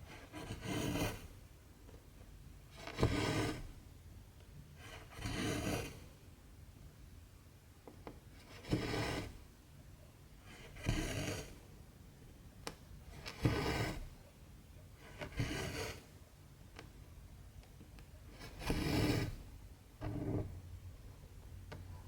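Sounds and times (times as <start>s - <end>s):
thread rasping through fabric: 13.1s - 14.1s.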